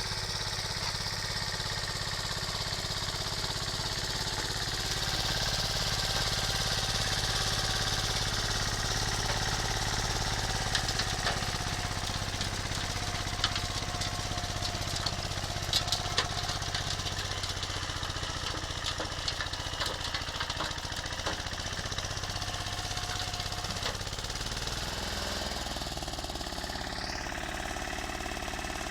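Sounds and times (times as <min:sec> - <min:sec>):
walking tractor engine running: 0:00.0 - 0:28.9
sharp clicks and clanks: 0:18.4 - 0:22.4.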